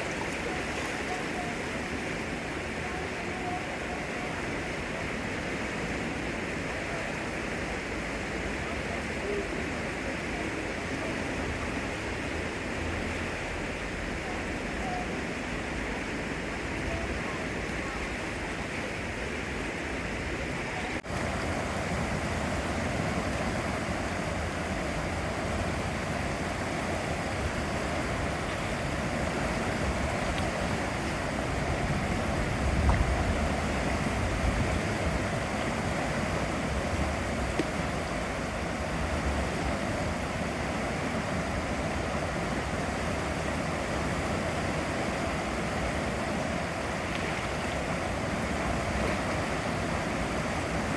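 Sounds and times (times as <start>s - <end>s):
floodwater rushing: 0.0s - 50.9s
wind buffeting microphone: 21.0s - 46.8s.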